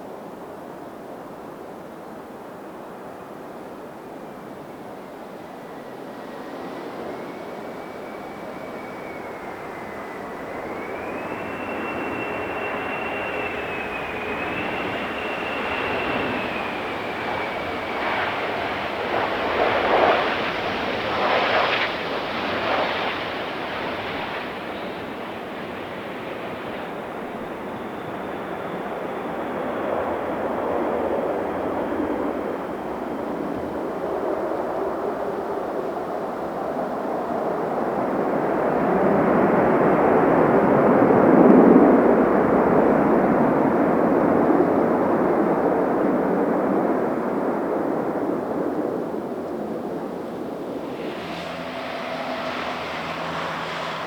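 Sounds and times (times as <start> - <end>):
jet engine whine: 0.0 - 54.0.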